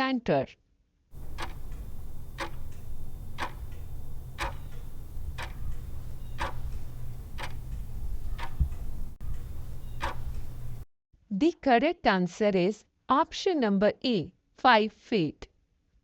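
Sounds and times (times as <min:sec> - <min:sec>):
clock ticking: 0:01.2 - 0:10.8
low steady hum: 0:01.2 - 0:10.8.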